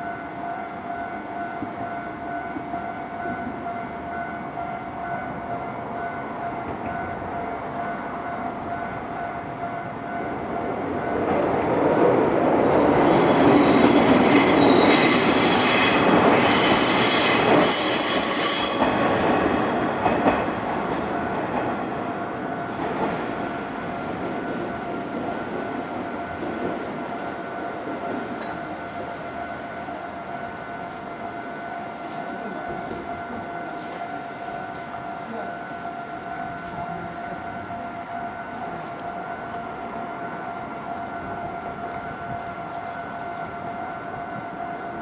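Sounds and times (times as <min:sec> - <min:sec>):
crossing warning bell ringing: 0:00.0 - 0:45.0
train wheels squealing on rails: 0:02.7 - 0:05.3, 0:11.5 - 0:21.4.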